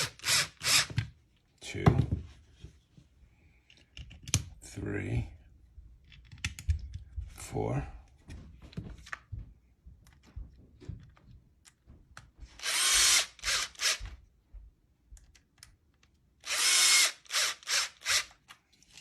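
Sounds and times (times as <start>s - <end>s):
electric screwdriver driving screws: 0.0s - 1.0s, 12.5s - 14.1s, 16.4s - 18.4s.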